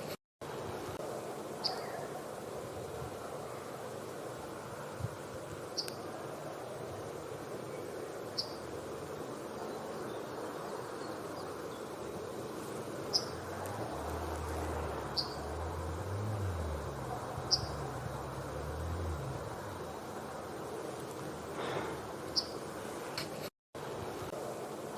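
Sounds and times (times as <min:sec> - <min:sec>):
steady background hiss: 0:00.0 - 0:24.9
low hum: 0:13.4 - 0:20.4.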